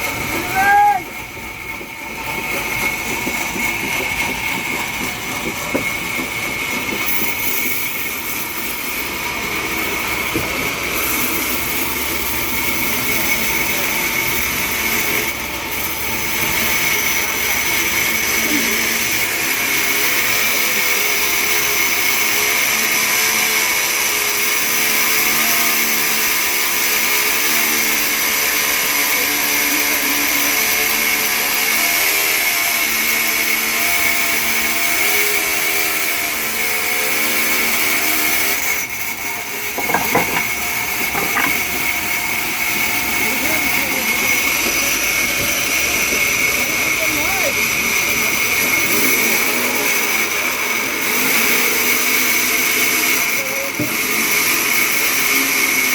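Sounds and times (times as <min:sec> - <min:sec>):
sawmill saw whining: 0:00.0 - 0:55.9
knocks: 0:39.8 - 0:41.6.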